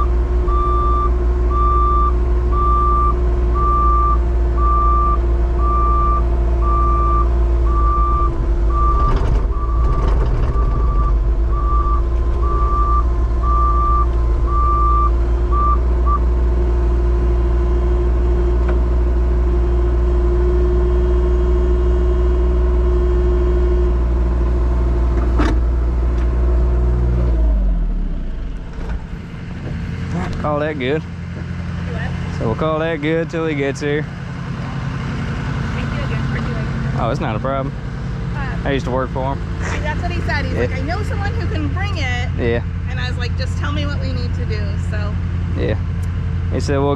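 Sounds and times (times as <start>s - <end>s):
backup alarm beeping: 0.0s - 16.3s
truck engine running: 0.0s - 46.9s.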